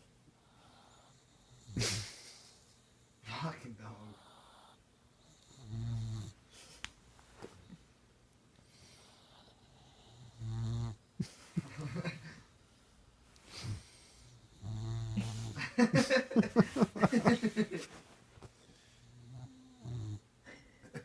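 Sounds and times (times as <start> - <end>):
puppy snoring: 4.0 - 6.4, 8.7 - 11.0, 13.5 - 15.6, 19.0 - 20.3
noisy breaths: 8.6 - 10.4, 12.6 - 14.6.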